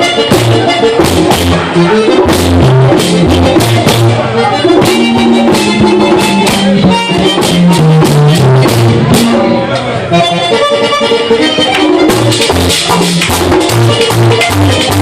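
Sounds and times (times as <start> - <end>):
electric bass line: 0.0 - 15.0
merengue band playing: 0.0 - 15.0.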